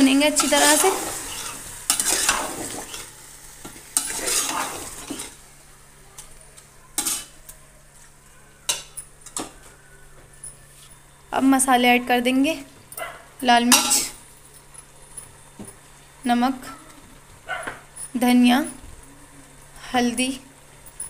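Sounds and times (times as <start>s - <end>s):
metal spoon stirring in pot: 0.0s - 5.4s, 6.9s - 7.4s
meat sizzling in hot oil: 0.0s - 5.6s.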